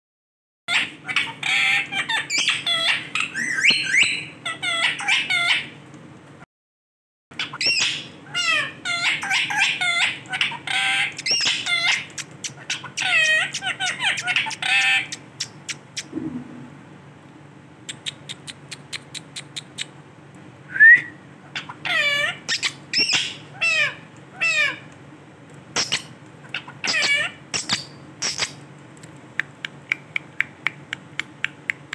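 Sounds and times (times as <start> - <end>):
parrot chattering and squawking: 0.7 - 5.8, 7.4 - 16.1, 17.8 - 20.0, 21.4 - 24.9, 25.7 - 28.6.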